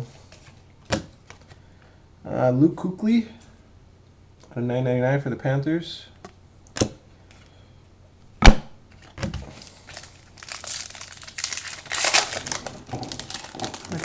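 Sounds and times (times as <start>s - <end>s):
wrapper tearing and crinkling: 9.5s - 14.0s.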